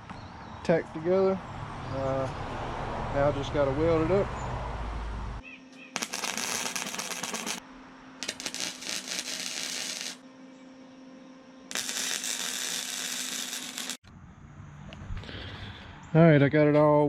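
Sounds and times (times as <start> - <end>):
arc welder crackling: 6.0 - 7.6, 8.2 - 10.2, 11.7 - 14.0.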